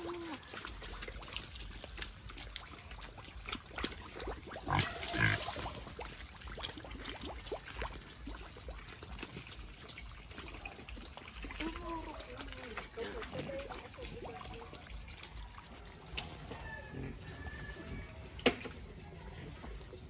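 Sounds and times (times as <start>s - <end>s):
pigs grunting: 3.9s - 6.0s.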